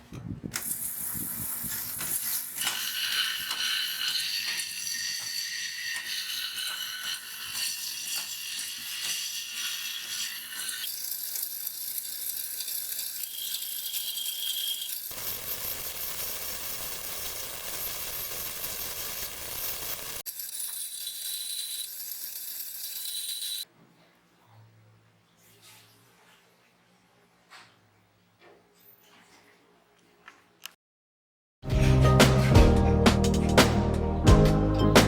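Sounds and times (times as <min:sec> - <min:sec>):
chain grinder clicking and rattling: 0:00.6 - 0:23.7.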